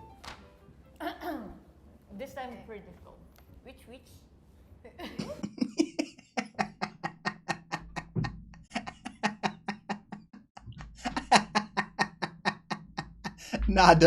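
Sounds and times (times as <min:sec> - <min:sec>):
person laughing: 0:04.9 - 0:13.7.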